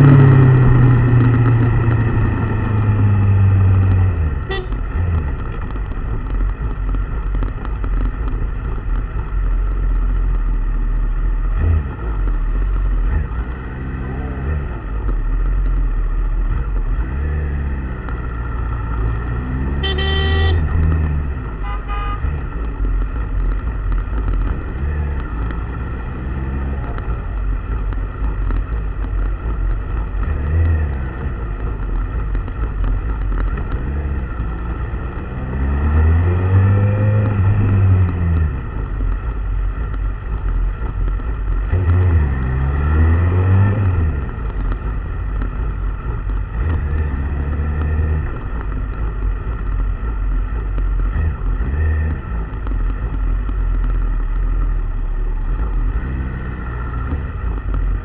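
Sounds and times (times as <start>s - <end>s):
vehicles passing: 0.0s - 58.0s
car horn: 4.4s - 4.9s, 19.6s - 20.8s, 21.6s - 22.4s.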